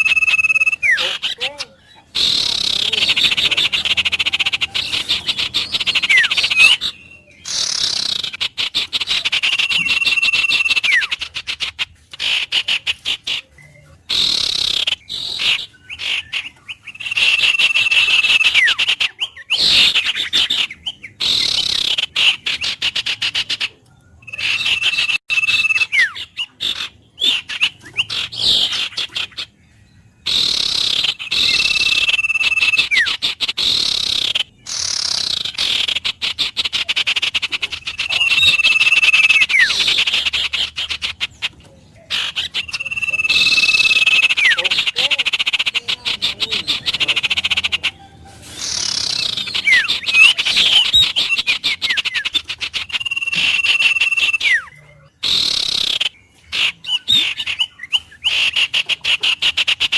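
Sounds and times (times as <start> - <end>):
birds chirping rapidly: 0.0 - 59.9
bird whistle dropping in pitch: 42.2 - 44.6, 52.9 - 56.0.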